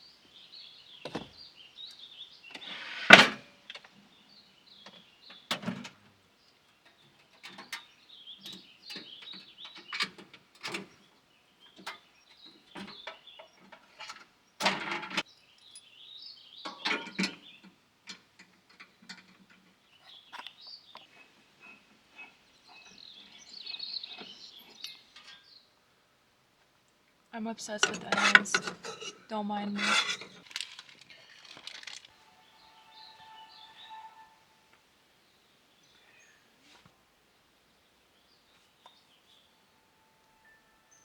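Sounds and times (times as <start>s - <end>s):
small birds chirping: 0.0s - 41.0s
objects knocking and clattering: 27.8s - 32.2s.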